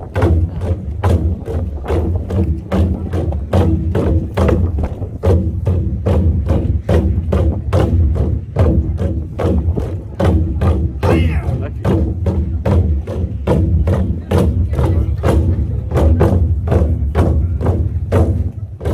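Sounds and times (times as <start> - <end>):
drum ensemble fast rhythm: 0.0 - 18.9.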